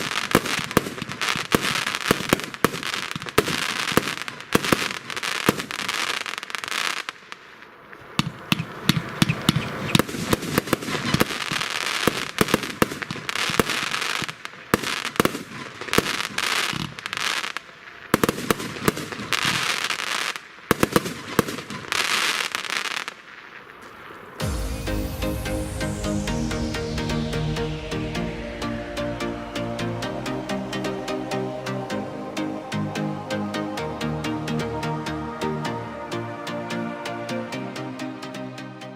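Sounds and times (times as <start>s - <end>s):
firework cake firing: 0.0s - 24.7s.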